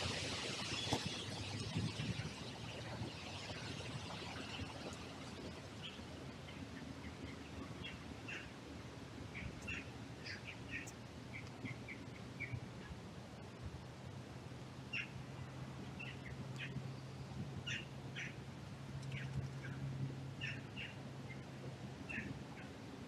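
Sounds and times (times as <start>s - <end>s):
low steady hum: 0.0s - 23.0s
small birds chirping: 0.2s - 8.6s, 9.3s - 12.9s, 14.9s - 18.4s, 20.4s - 21.5s, 22.1s - 22.7s.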